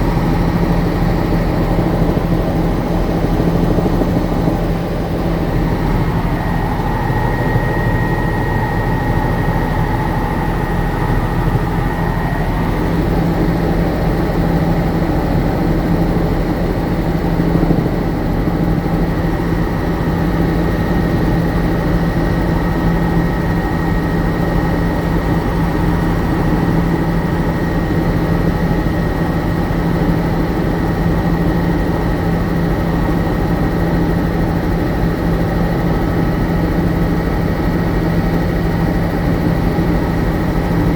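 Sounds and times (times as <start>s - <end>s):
helicopter engine and rotor droning: 0.0s - 40.9s
faint high whine: 3.1s - 13.6s.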